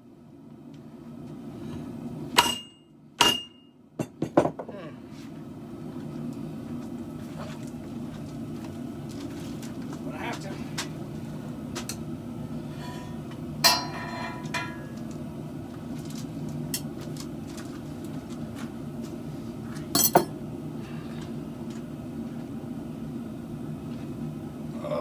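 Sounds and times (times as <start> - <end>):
steady low hum: 0.0 - 25.0
metal clanking against metal: 12.8 - 15.0.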